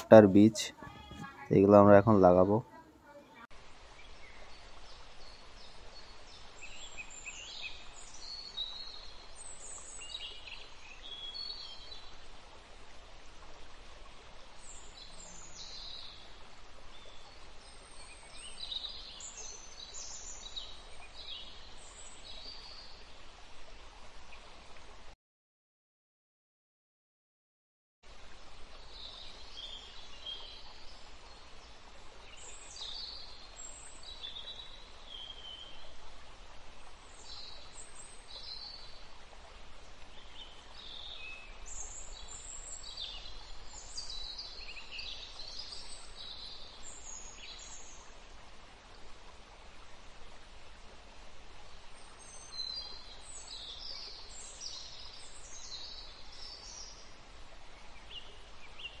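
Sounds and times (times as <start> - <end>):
small birds chirping: 0.0 - 12.2, 14.6 - 23.0, 36.8 - 39.2
outdoor background hiss: 0.0 - 25.2, 28.0 - 59.0.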